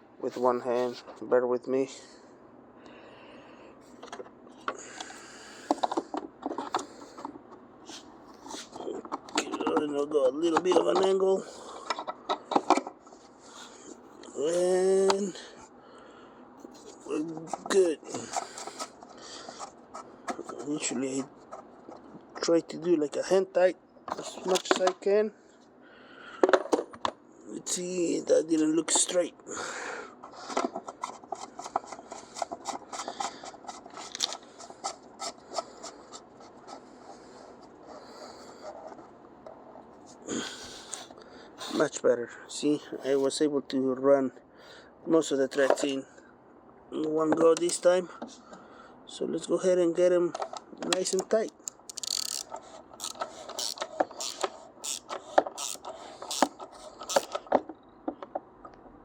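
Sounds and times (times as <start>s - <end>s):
cap clicking and scraping on threads: 30.2s - 36.8s, 50.4s - 58.4s
ratchet wrench clicking: 51.7s - 57.3s.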